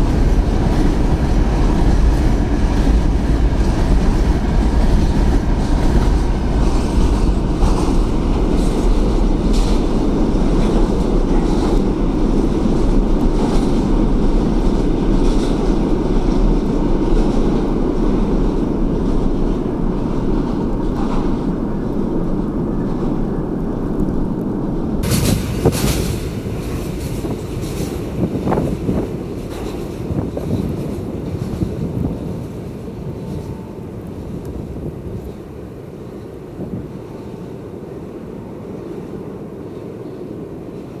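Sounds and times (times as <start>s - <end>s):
train wheels rumbling on track: 0.0s - 41.0s.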